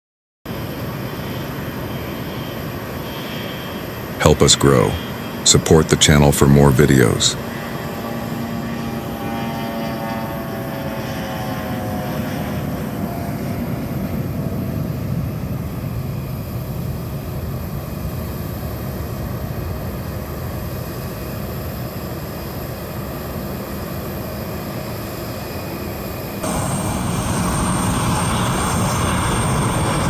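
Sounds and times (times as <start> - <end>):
airplane flying past: 7.5 - 12.8.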